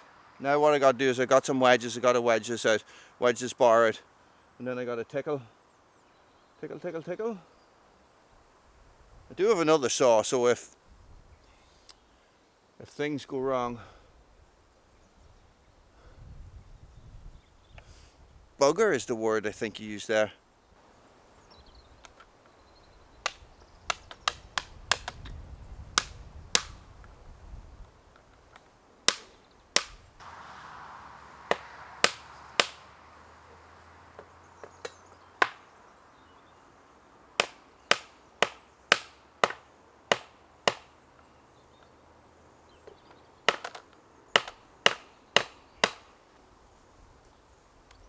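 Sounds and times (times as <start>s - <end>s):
hammer striking wedges: 31.5s - 32.9s, 34.8s - 35.6s, 37.4s - 40.9s, 44.4s - 46.1s.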